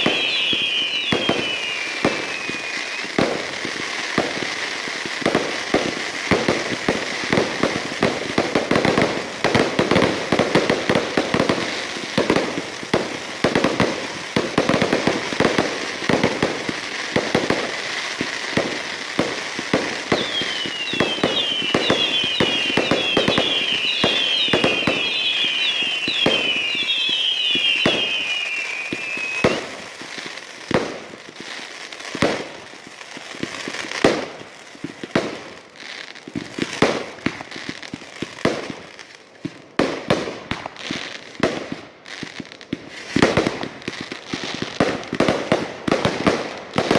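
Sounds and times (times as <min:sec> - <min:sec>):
falling firework whistles: 0:00.0 - 0:08.1, 0:08.8 - 0:30.8
fireworks bangs and crackling: 0:00.0 - 0:46.9.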